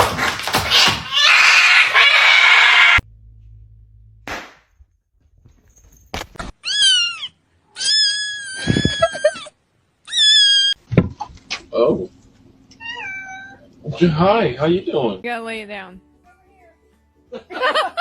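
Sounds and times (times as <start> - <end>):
cat meowing: 6.6 - 9.4, 10.1 - 10.8, 12.8 - 13.7.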